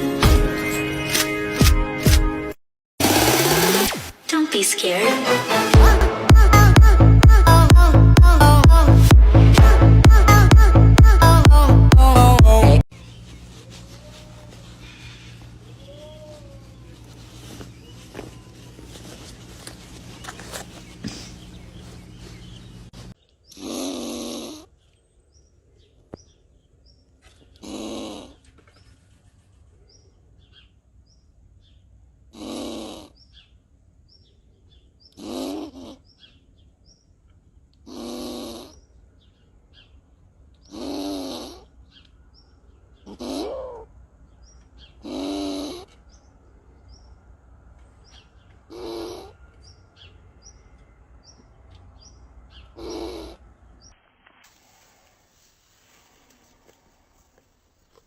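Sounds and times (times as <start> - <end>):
animal snoring: 23.6 - 24.7, 27.6 - 28.4, 32.3 - 33.2, 35.2 - 36.0, 37.9 - 38.8, 40.7 - 41.7, 45.0 - 45.9, 48.7 - 49.4, 52.8 - 53.4.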